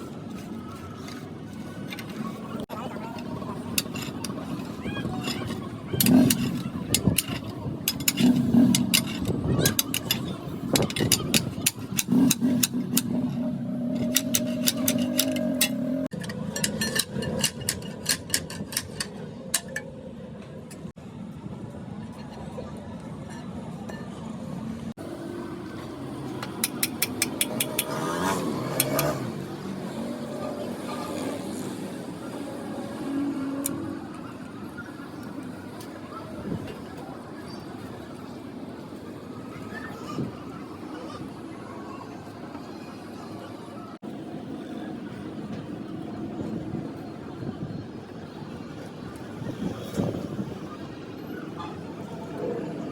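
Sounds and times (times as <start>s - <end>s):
vehicle engine running: 2.0s - 16.1s
metallic clicks and taps: 6.0s - 19.9s, 26.4s - 28.0s.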